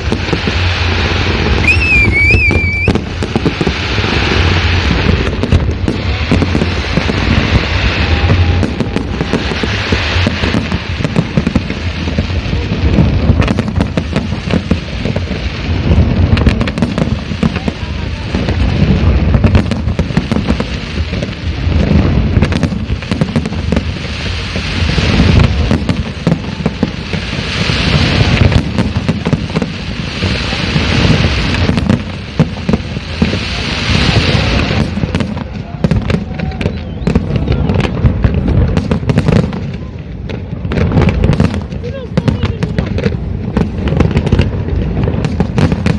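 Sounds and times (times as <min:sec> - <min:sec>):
low rumble: 0:00.0 - 0:16.5
fireworks bangs and booms: 0:00.0 - 0:45.9
fireworks crackling: 0:00.0 - 0:45.9.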